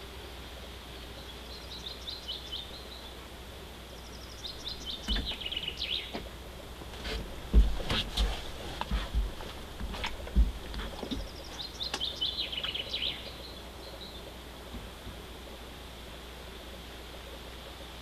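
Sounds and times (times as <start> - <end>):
songbird singing: 0.0 - 18.0
steady outdoor hiss: 0.0 - 18.0
low thumps and clicks: 4.9 - 12.1.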